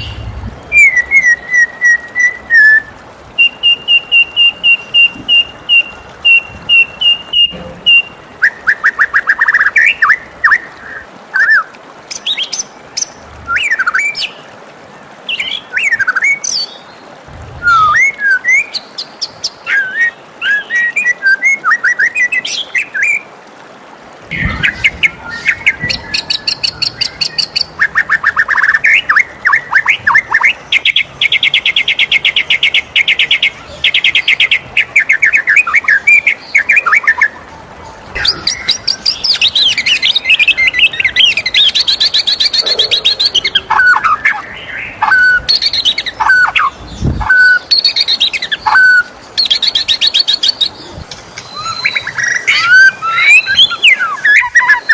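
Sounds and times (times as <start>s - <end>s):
bird singing varied song: 0.0s - 23.3s, 24.3s - 54.9s.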